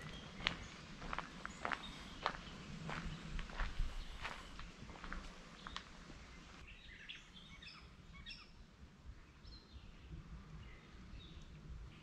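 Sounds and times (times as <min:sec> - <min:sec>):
soft footsteps: 0:00.0 - 0:06.6
faint birds chirping: 0:00.0 - 0:12.0.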